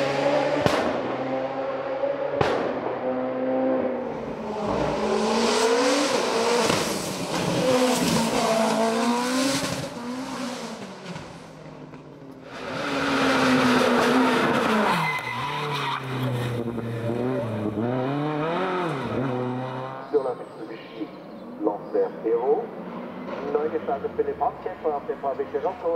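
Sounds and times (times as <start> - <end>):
race car engine revving: 0.0 - 20.4.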